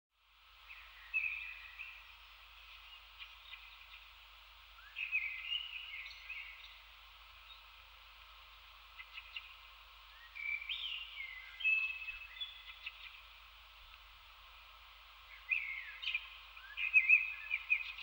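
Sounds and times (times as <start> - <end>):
steady hiss: 0.2 - 18.0
songbird singing: 0.4 - 18.0.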